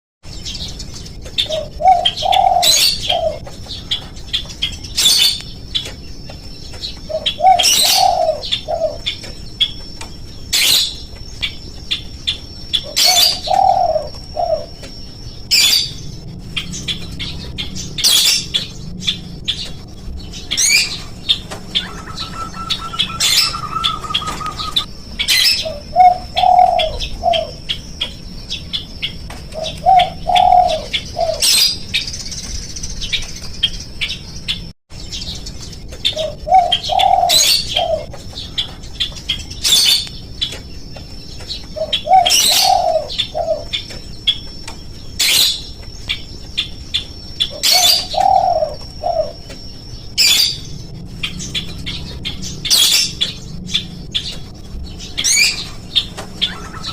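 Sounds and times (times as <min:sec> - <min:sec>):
high bird chirps: 0:00.2 - 0:56.9
dove cooing: 0:01.4 - 0:05.4, 0:07.0 - 0:09.2, 0:12.7 - 0:27.8, 0:29.5 - 0:31.8, 0:36.0 - 0:38.7, 0:41.8 - 0:43.8, 0:47.4 - 0:49.6, 0:50.2 - 0:56.9.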